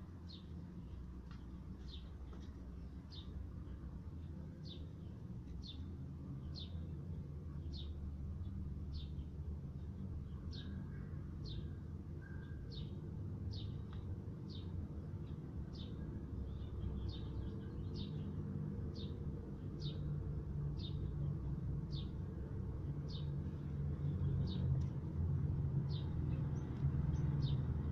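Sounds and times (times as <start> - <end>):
bird chirping: 10.2 - 20.1.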